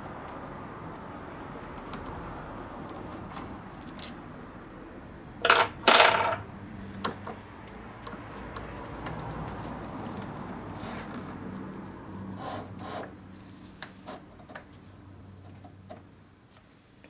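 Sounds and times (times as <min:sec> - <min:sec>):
small metal parts clinking: 0:05.4 - 0:06.4.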